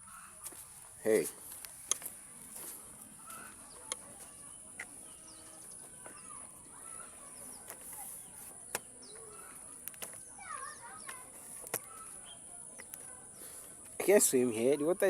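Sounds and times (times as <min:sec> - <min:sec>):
faint bird chirps and whistles: 0:03.3 - 0:11.2, 0:11.8 - 0:13.6.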